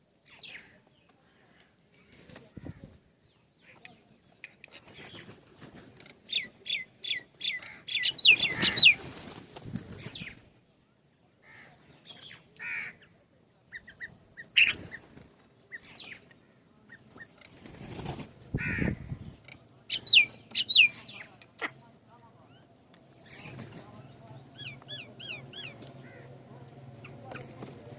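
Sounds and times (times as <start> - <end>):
small birds chirping: 0.2 - 10.7, 11.6 - 27.9
wings rustling: 8.0 - 10.5, 17.2 - 20.7, 23.0 - 27.9.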